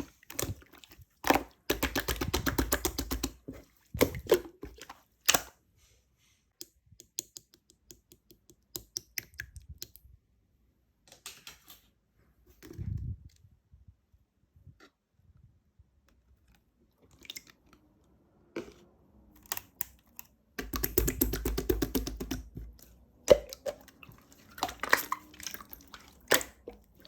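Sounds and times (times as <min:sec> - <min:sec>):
slime squelch: 0:00.0 - 0:05.8, 0:16.5 - 0:27.0.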